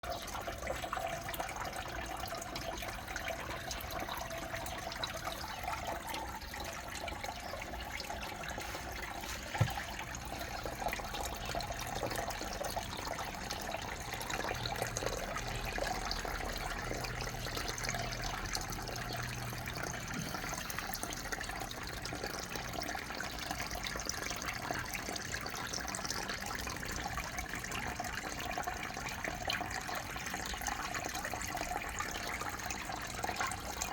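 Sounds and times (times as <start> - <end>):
short knock: 9.6 - 9.9.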